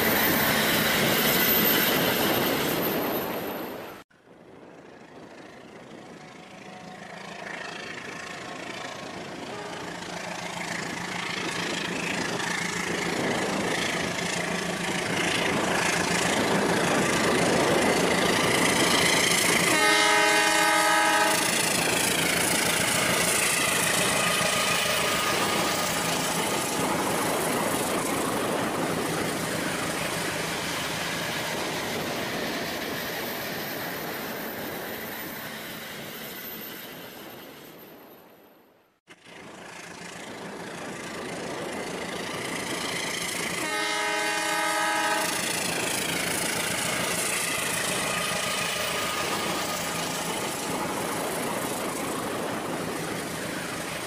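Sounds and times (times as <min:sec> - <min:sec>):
train rumbling past: 0:00.0 - 0:54.0
train horn blast: 0:09.5 - 0:10.1, 0:19.6 - 0:21.6, 0:43.6 - 0:45.5.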